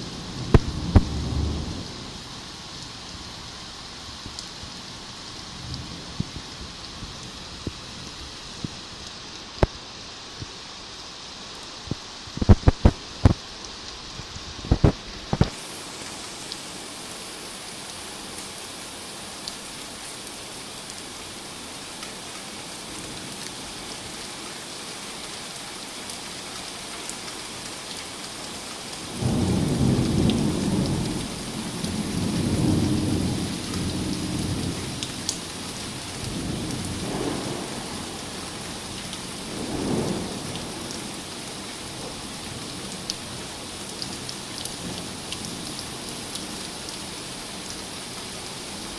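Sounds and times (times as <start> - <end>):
thunder rumbling: 0.0 - 2.3, 36.2 - 41.2
steady rain: 0.0 - 48.9.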